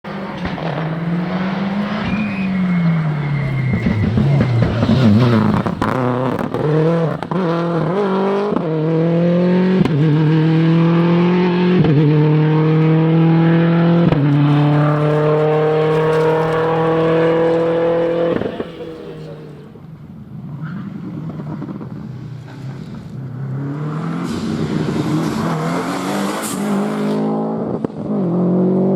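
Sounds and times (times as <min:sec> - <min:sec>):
gear change crack: 0:00.1 - 0:02.6, 0:14.0 - 0:19.6
rally car engine accelerating: 0:00.1 - 0:28.9.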